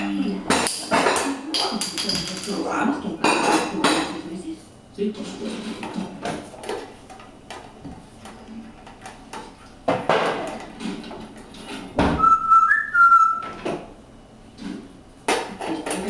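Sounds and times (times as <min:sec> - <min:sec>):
parrot whistling: 0:12.2 - 0:13.6.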